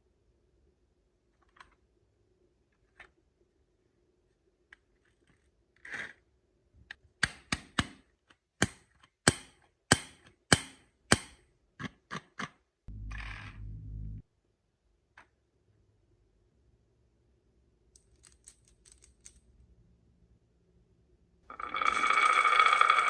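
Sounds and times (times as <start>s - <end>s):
marble rolling rumble: 12.9s - 14.2s, 21.5s - 23.0s
marbles clacking on wooden track: 21.5s - 23.0s.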